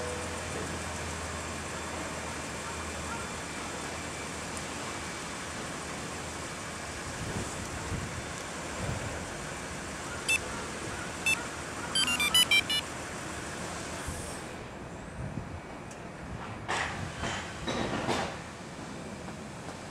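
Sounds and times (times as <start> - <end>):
short electronic beeps: 12.0 - 12.9.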